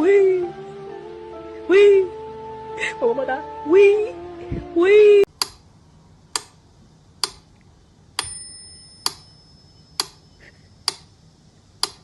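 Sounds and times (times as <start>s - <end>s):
thin high ringing tone: 8.2s - 10.8s
clock-like ticks: 10.8s - 11.1s.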